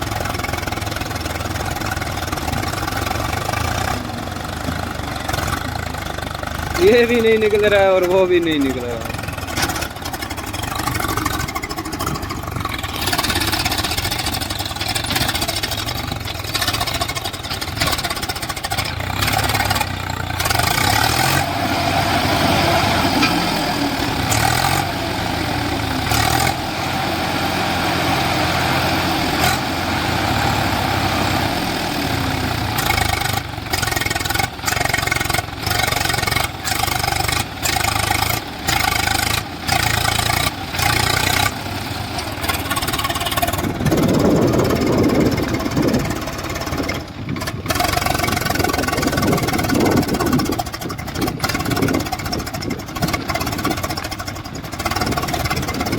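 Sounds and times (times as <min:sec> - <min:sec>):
tractor diesel engine revving: 0:00.0 - 0:55.9.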